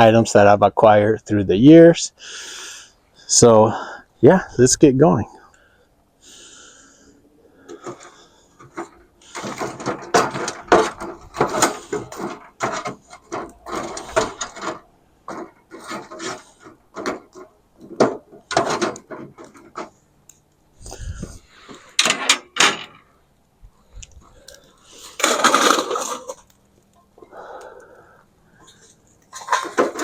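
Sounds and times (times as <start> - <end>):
things being handled knocks and scrapes: 7.6 - 20.0, 24.4 - 27.1, 28.6 - 30.0.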